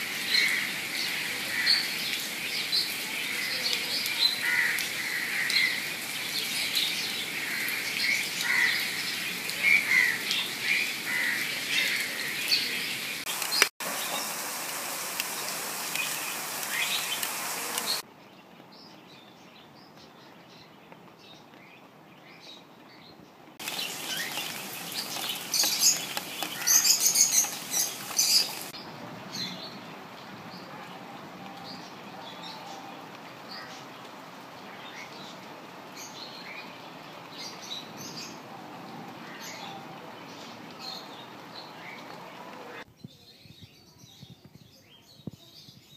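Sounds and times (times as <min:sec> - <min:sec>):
rain on leaves: 0:00.0 - 0:19.4, 0:23.5 - 0:42.9
small birds chirping: 0:15.2 - 0:31.0, 0:31.6 - 0:45.9.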